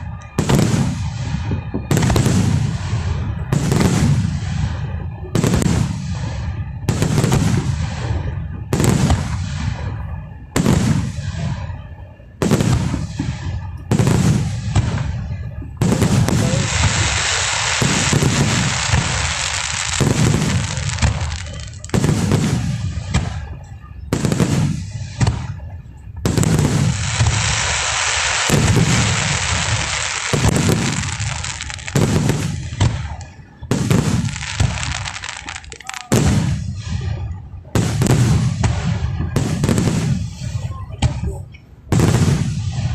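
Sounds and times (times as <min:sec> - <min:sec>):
fireworks crackling: 0:00.0 - 0:42.9
fireworks shells booming: 0:00.0 - 0:42.9.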